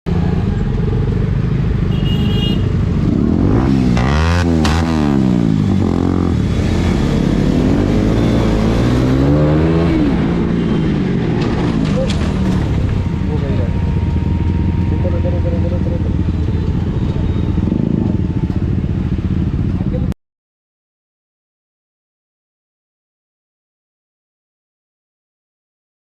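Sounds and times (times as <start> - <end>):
motorcycle engine revving: 0.1 - 20.2.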